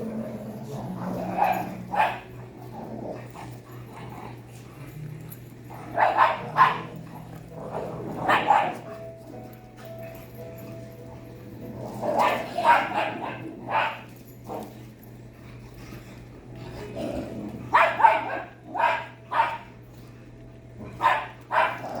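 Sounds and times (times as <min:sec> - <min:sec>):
steady low hum: 0:00.0 - 0:22.0
dog barking: 0:01.3 - 0:02.3, 0:05.9 - 0:07.0, 0:08.2 - 0:09.0, 0:12.2 - 0:14.1, 0:17.7 - 0:19.7, 0:21.0 - 0:22.0.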